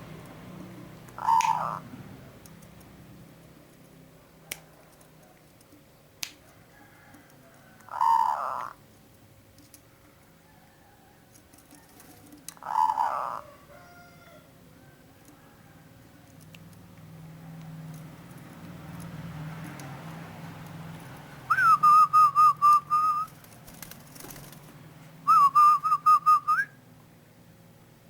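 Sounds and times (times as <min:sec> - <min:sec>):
dove cooing: 0:00.6 - 0:02.4, 0:07.9 - 0:08.8, 0:11.8 - 0:14.2, 0:21.4 - 0:23.4, 0:25.3 - 0:26.7.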